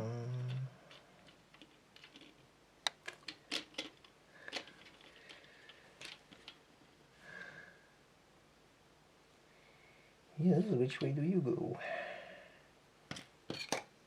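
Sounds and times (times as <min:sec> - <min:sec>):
plastic parts clicking together: 0:00.4 - 0:06.6.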